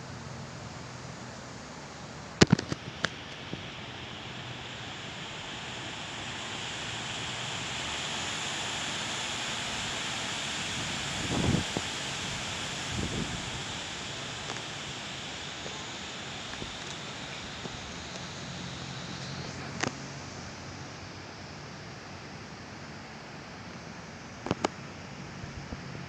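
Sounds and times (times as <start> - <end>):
heavy wind blowing: 2.6 - 19.8.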